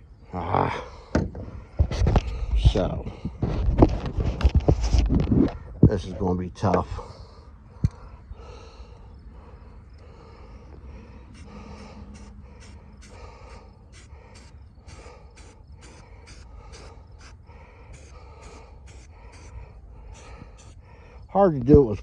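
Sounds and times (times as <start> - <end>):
low steady rumble: 5.6 - 21.3
touch-up tool scraping car paint: 11.3 - 20.8.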